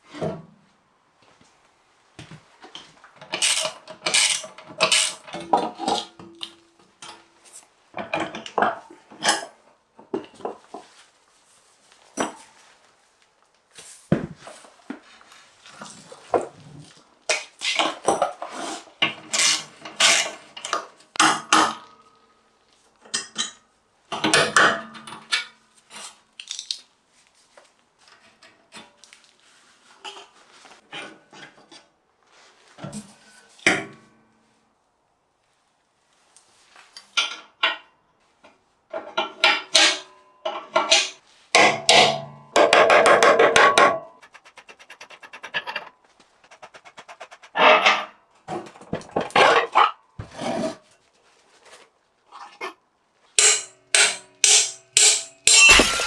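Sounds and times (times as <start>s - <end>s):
metal tools clinking and clattering: 55.5s - 56.0s.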